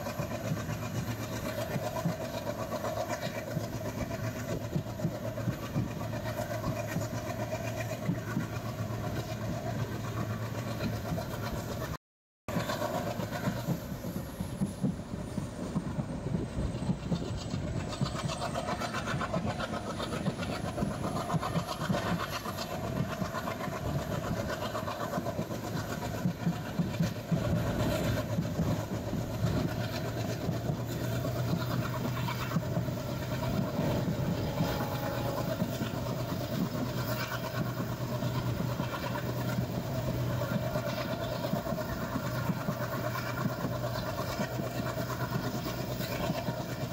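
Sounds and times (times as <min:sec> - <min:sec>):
train rumble: 0:00.0 - 0:46.9.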